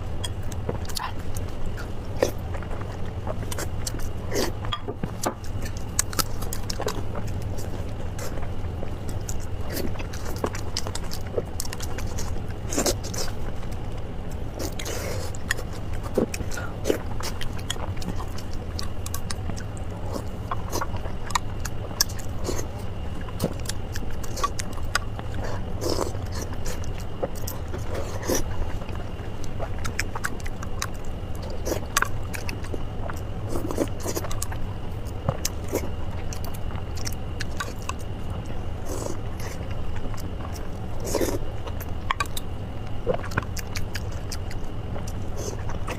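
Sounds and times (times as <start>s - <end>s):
low hum: 0.0s - 45.9s
wet chewing and mouth smacks: 0.2s - 45.9s.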